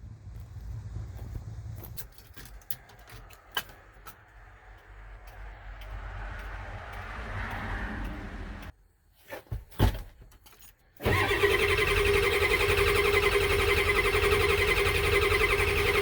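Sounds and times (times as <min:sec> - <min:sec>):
vehicle engine humming: 0:00.0 - 0:08.8, 0:11.0 - 0:16.0
loud engine with pitched whine: 0:11.1 - 0:16.0.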